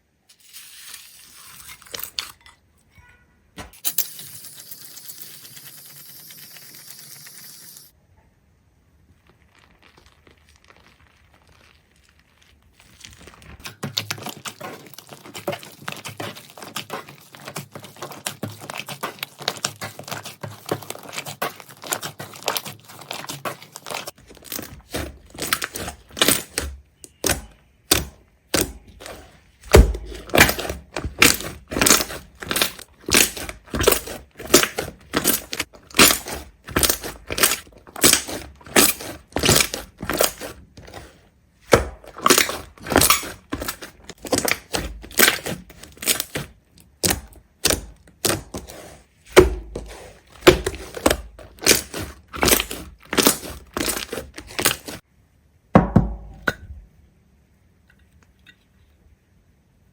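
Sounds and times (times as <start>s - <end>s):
crisp crackling and crinkling: 8.9s - 55.0s
sharp crunches of brittle material: 18.1s - 55.0s.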